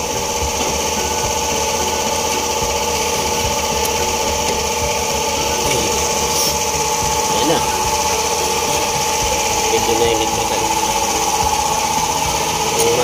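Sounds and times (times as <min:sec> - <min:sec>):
engine idling with whine: 0:00.0 - 0:13.0.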